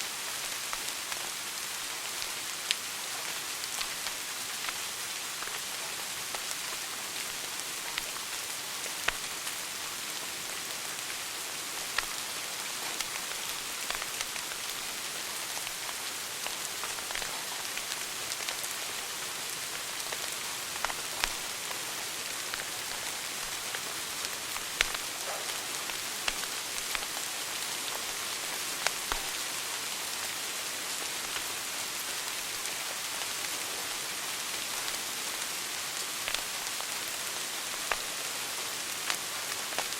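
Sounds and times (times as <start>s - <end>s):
fire crackling and popping: 0.1s - 39.9s
fire hissing: 6.4s - 29.4s.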